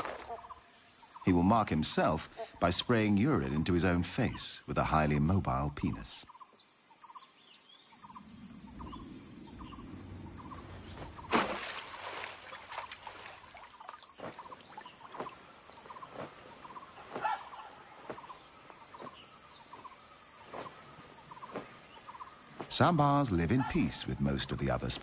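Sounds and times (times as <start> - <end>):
birds calling in short notes: 6.0 - 24.2.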